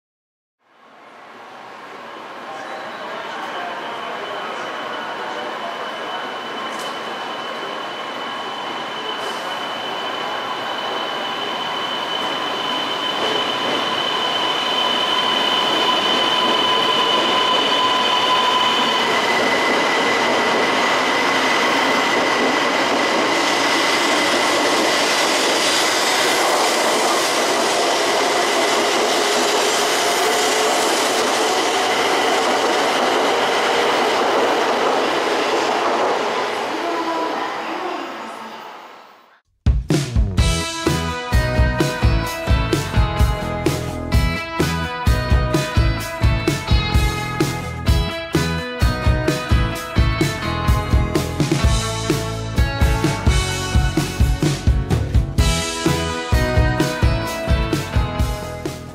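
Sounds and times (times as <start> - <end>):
high-speed train passing: 0.7 - 39.4, 40.4 - 58.9
train high whine: 0.7 - 39.4, 40.4 - 58.9
train wheel noise: 3.2 - 38.7, 40.4 - 58.9.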